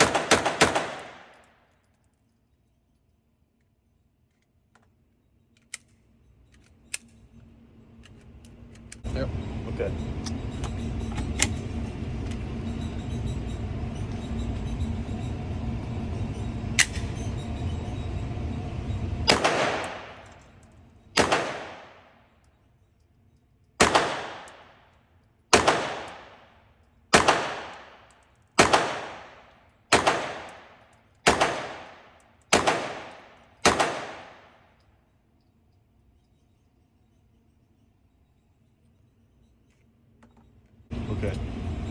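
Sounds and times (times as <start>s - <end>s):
pistol shots with echo: 0.0s - 1.4s, 19.3s - 20.3s, 21.2s - 22.2s, 23.8s - 24.8s, 25.5s - 34.6s
steady background hum: 0.0s - 41.9s.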